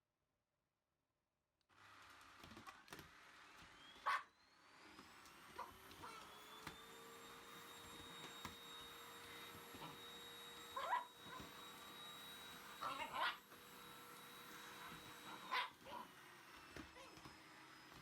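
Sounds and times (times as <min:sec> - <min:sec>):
vacuum cleaner motor hum: 0:01.7 - 0:18.0
dog barking: 0:04.0 - 0:04.3, 0:10.8 - 0:11.5, 0:15.2 - 0:16.1.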